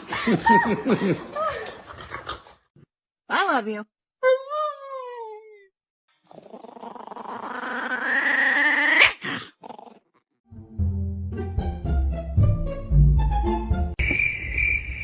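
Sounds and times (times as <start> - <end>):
dog growling: 6.2 - 10.2.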